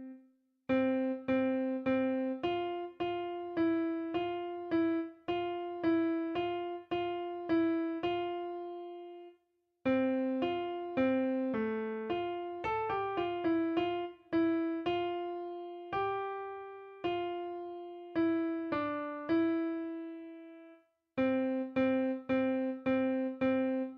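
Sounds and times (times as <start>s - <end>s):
piano keyboard playing hymn line: 9.9s - 23.9s.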